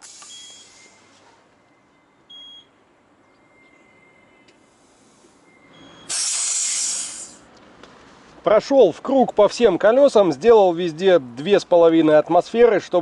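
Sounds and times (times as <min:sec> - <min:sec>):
air hissing: 0:00.0 - 0:01.1, 0:04.6 - 0:07.5
air pump beeps: 0:00.0 - 0:01.1, 0:02.0 - 0:04.3, 0:05.4 - 0:07.4.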